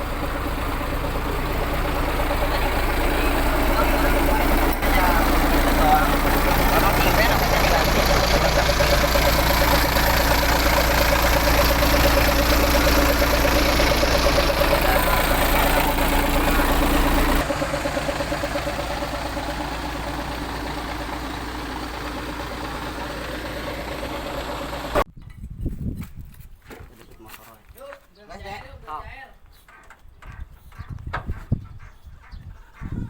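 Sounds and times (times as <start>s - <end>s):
diesel truck engine running: 0.0s - 25.1s.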